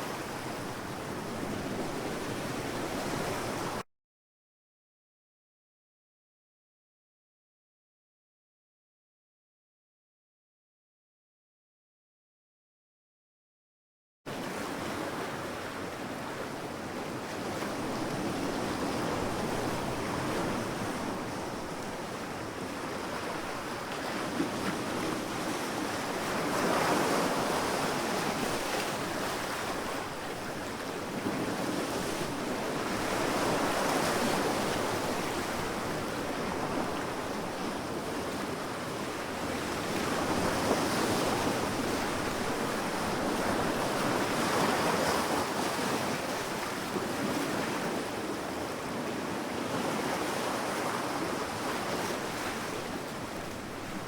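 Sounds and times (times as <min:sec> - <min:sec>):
waves breaking on beach: 0:14.3 - 0:54.0.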